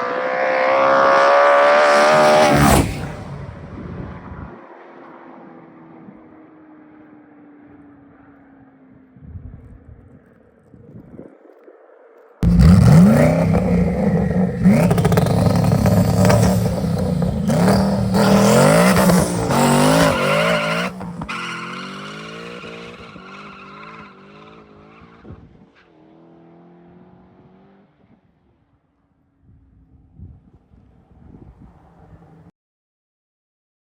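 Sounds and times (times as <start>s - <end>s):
distant car engine rumble: 12.4s - 25.6s.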